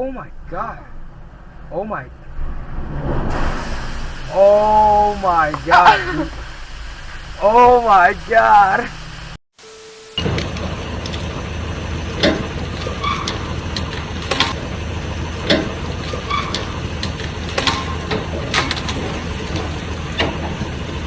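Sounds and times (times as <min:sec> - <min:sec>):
vehicle engine humming: 0:00.0 - 0:09.4, 0:10.2 - 0:21.0
sharp clicks and knocks: 0:10.2 - 0:14.7, 0:15.4 - 0:20.8.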